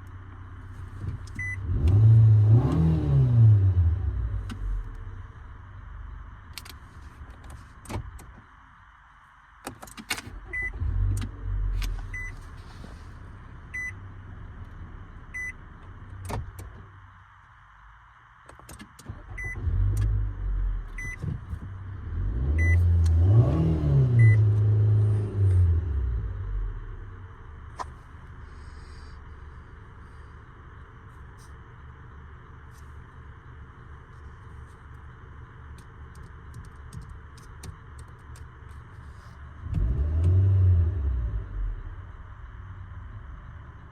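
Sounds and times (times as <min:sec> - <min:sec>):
car engine revving: 0:01.0 - 0:04.9, 0:19.3 - 0:30.3, 0:39.6 - 0:43.1
car warning chime beeping: 0:10.5 - 0:10.8, 0:12.1 - 0:12.4, 0:13.7 - 0:14.0, 0:15.3 - 0:15.6, 0:19.4 - 0:19.6, 0:20.9 - 0:21.2, 0:22.6 - 0:22.9, 0:24.1 - 0:24.5.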